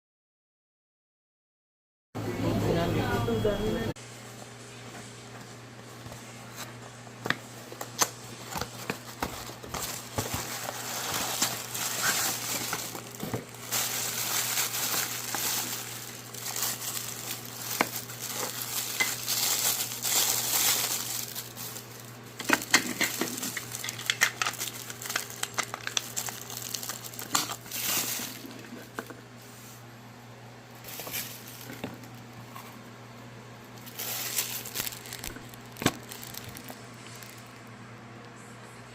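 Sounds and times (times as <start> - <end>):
packaging crinkling and rustling: 5.9 - 29.2, 30.7 - 32.8, 33.7 - 37.7.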